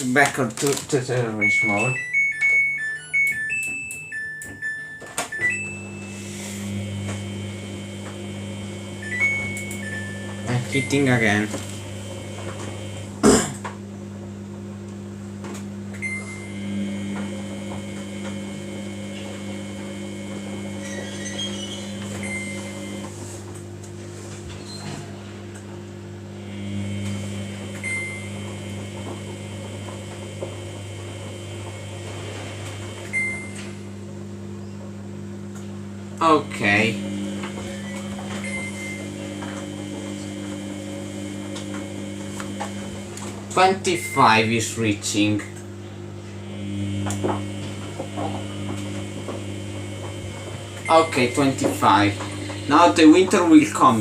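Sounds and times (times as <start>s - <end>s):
washing machine electrical hum: 0.0s - 54.0s
faint high whine: 5.4s - 12.3s, 16.0s - 23.1s, 36.2s - 44.9s, 46.4s - 54.0s.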